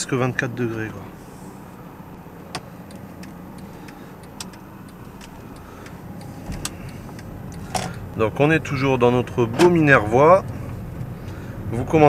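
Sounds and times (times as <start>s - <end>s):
diesel engine humming: 0.0s - 12.0s
light clicks: 2.5s - 8.1s.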